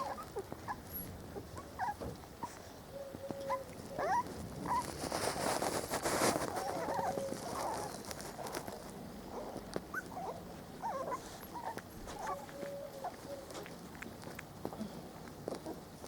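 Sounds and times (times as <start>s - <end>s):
puppy whining: 0.0s - 5.2s, 6.4s - 13.7s
puppies whimpering and squeaking: 0.0s - 13.7s
light ticks and rustling: 0.0s - 16.0s.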